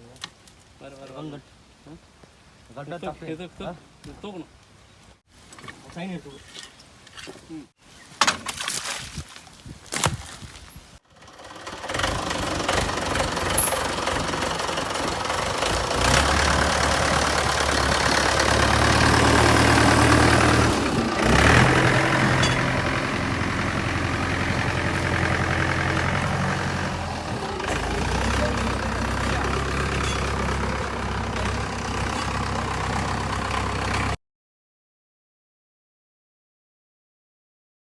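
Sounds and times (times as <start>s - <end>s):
diesel tractor engine running: 11.1s - 34.2s.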